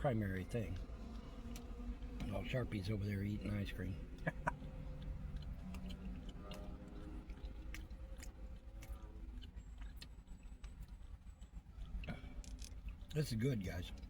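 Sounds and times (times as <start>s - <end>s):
low steady hum: 0.0s - 14.0s
man chewing food: 4.0s - 13.2s
wet mouth clicks: 4.2s - 11.0s.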